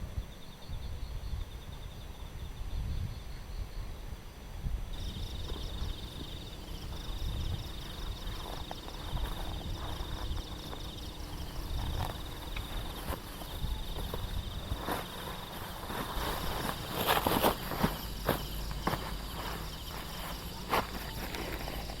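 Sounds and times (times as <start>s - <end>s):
night insects trilling: 4.9s - 22.0s.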